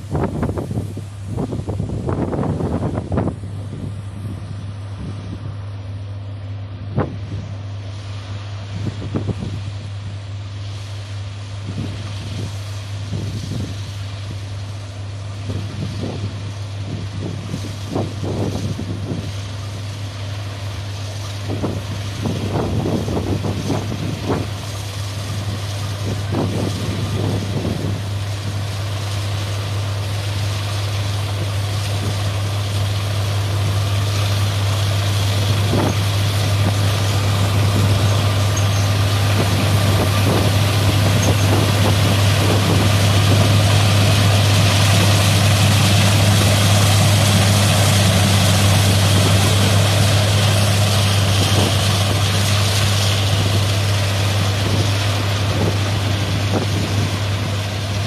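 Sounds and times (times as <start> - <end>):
combine harvester engine hum: 0.0 - 58.0.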